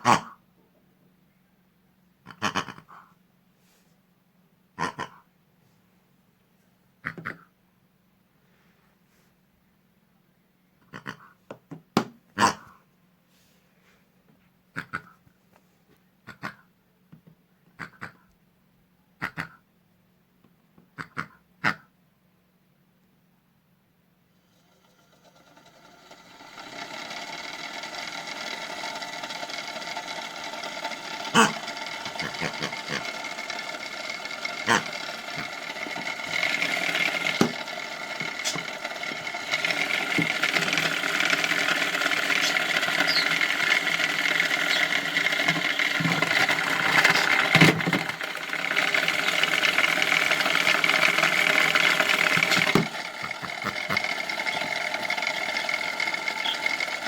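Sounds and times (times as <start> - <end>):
small electric motor whining: 24.4 - 57.0.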